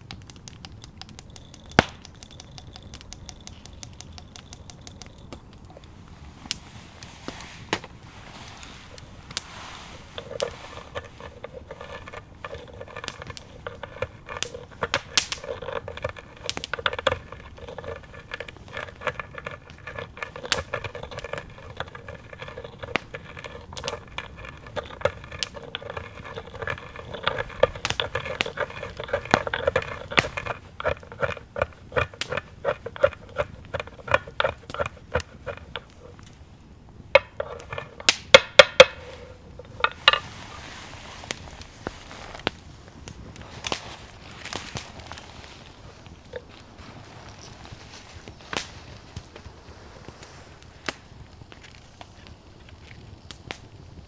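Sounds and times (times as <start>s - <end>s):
cooking utensils clicking and tapping: 0.0s - 6.0s, 10.1s - 36.4s, 37.1s - 40.3s.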